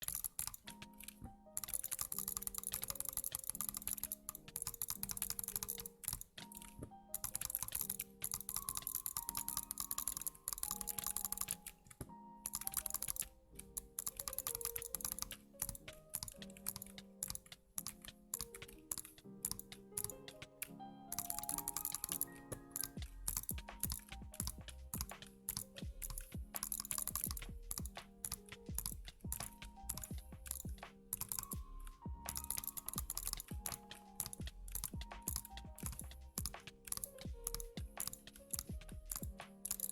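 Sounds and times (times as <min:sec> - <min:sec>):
background music melody: 0:00.0 - 0:39.9
keyboard typing clicks: 0:00.0 - 0:39.9
deep bass line: 0:27.3 - 0:27.8.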